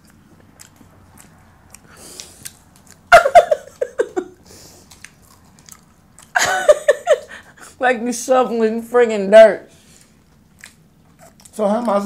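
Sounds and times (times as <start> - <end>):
biting and chewing crunchy food: 0.0 - 3.1, 4.5 - 6.4, 9.9 - 12.0
voice: 7.8 - 9.7, 11.5 - 12.0.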